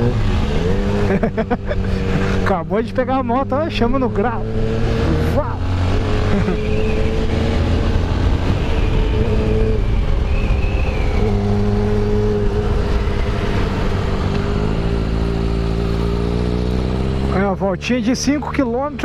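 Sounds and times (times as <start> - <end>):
motorcycle engine running: 0.0 - 19.0
wind rush: 4.4 - 16.1.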